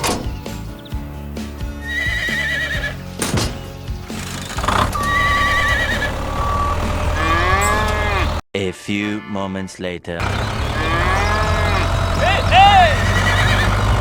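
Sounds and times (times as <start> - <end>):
background music: 0.0 - 11.4
high wavering animal call: 5.0 - 6.2.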